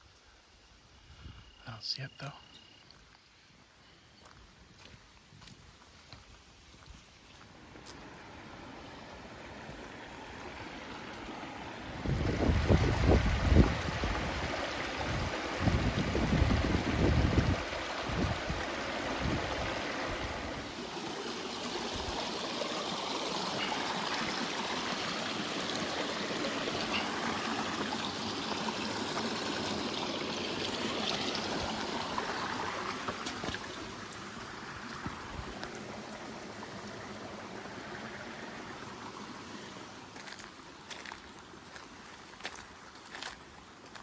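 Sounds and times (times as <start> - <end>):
stream water rushing: 7.3 - 44.0
wind buffeting microphone: 11.9 - 20.7.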